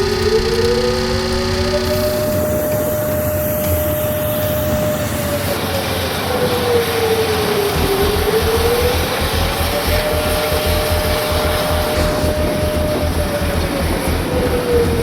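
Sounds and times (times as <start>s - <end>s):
engine whine: 0.0s - 15.0s
jet engines roaring: 0.0s - 15.0s.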